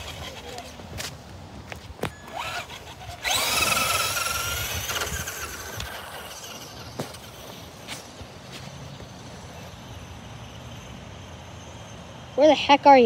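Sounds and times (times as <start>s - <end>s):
toy truck motor whining: 0.0s - 0.8s, 2.2s - 7.9s.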